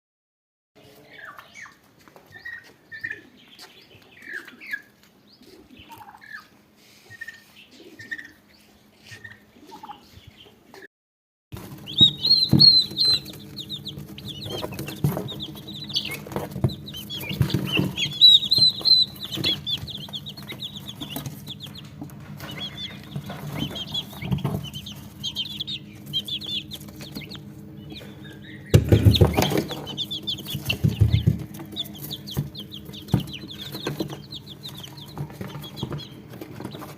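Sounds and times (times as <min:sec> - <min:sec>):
chicks peeping: 0:00.8 - 0:10.9, 0:11.6 - 0:36.9
poultry clucking: 0:00.8 - 0:10.9, 0:11.6 - 0:36.9
low hum: 0:11.6 - 0:36.4.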